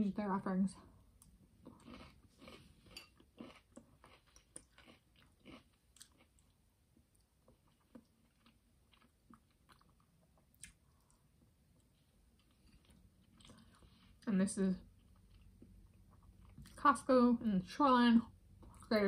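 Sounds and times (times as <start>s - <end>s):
faint chewing noodles: 1.2s - 14.2s.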